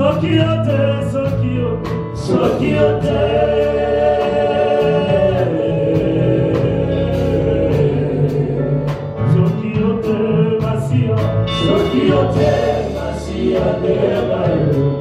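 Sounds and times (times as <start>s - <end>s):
band with drum beat: 0.0s - 15.0s
singers holding long notes: 2.2s - 9.0s, 11.4s - 15.0s.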